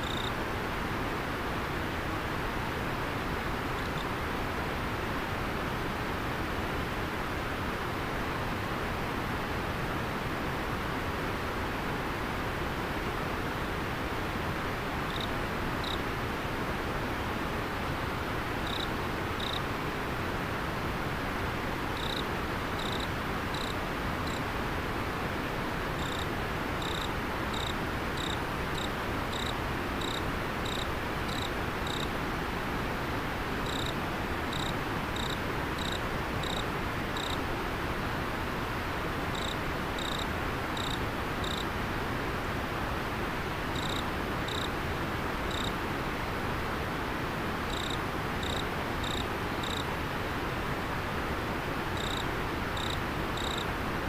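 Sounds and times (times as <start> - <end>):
insect chirping: 0.0 - 0.3, 3.8 - 4.1, 15.1 - 16.0, 18.6 - 19.6, 22.0 - 22.2, 22.8 - 24.4, 26.0 - 32.1, 33.6 - 37.4, 39.3 - 41.7, 43.8 - 44.7, 45.5 - 45.7, 47.7 - 49.8, 52.0 - 53.6
river water running: 0.0 - 54.0.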